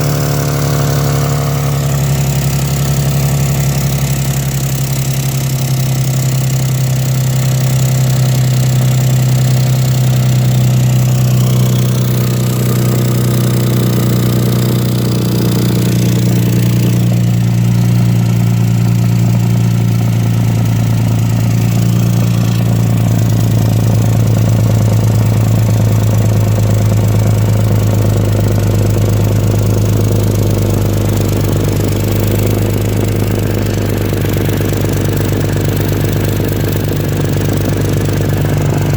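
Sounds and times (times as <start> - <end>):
engine idling with exhaust leak: 0.0 - 38.9.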